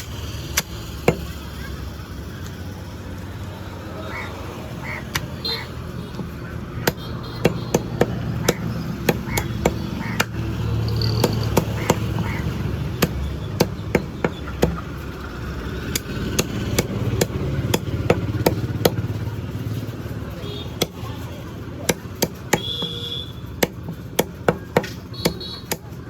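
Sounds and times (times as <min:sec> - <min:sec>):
cleaver chopping chicken: 0:06.2 - 0:10.6, 0:11.2 - 0:19.3, 0:20.1 - 0:26.0.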